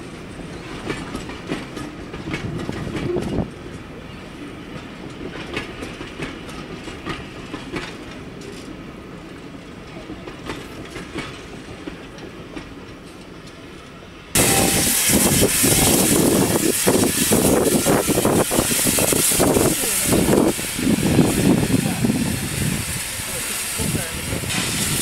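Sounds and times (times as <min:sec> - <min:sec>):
wheels clicking over rail joints: 0:00.3 - 0:03.9, 0:04.7 - 0:08.9, 0:09.6 - 0:14.0
steam hissing from locomotive: 0:14.3 - 0:25.0.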